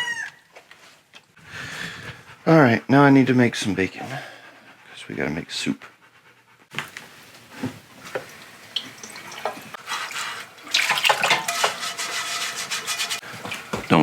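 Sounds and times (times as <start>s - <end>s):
pan being scrubbed: 6.8s - 14.0s
tap running into a sink: 7.6s - 9.7s, 13.3s - 14.0s.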